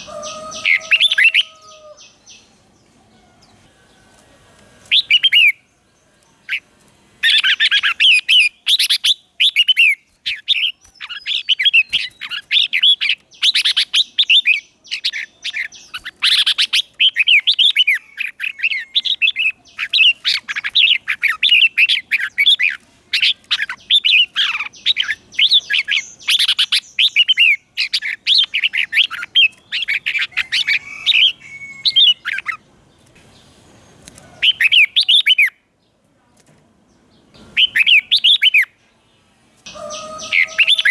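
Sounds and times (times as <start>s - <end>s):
bulbul singing: 0.0s - 4.0s, 4.8s - 32.6s, 37.3s - 38.8s, 39.6s - 40.9s.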